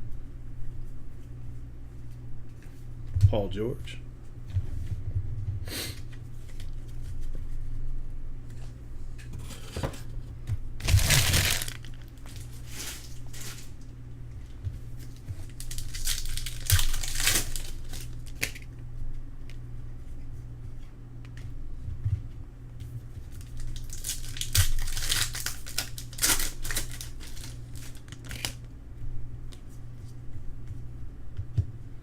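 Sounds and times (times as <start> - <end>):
foil wrappers crinkling and tearing: 10.8 - 13.9, 15.0 - 18.7, 23.2 - 28.7.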